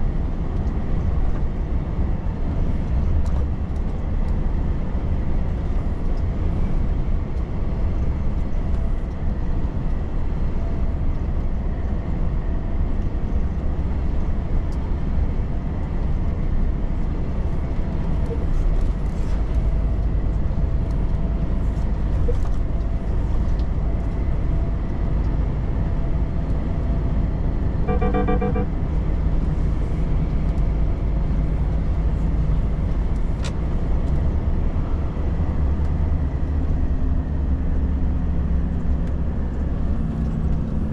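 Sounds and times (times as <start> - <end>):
truck engine and road rumble: 0.0 - 40.9
rapid beeps: 27.9 - 28.7.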